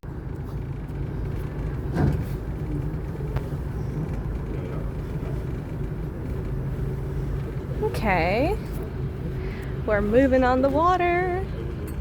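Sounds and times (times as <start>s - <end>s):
boat engine droning: 0.1s - 12.0s.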